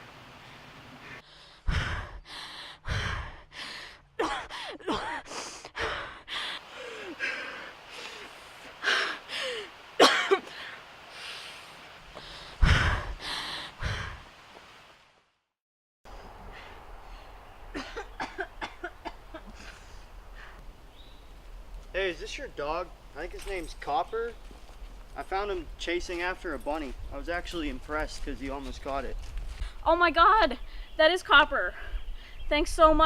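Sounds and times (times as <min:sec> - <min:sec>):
person breathing hard: 0:01.0 - 0:09.7, 0:10.5 - 0:14.2, 0:19.5 - 0:20.6
person sighing and gasping: 0:01.6 - 0:09.7, 0:12.2 - 0:14.2.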